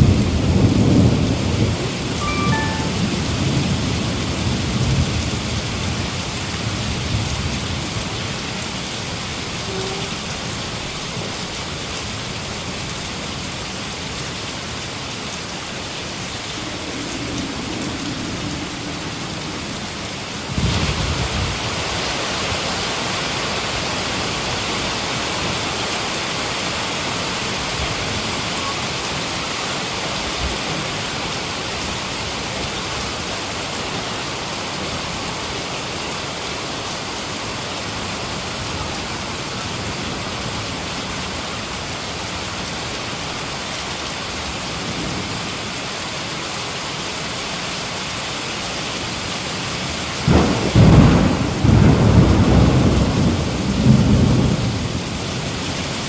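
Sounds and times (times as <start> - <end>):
low rumble of thunder: 0.0 - 2.2, 16.0 - 22.0, 50.2 - 55.8
heavy rain falling: 0.0 - 56.0.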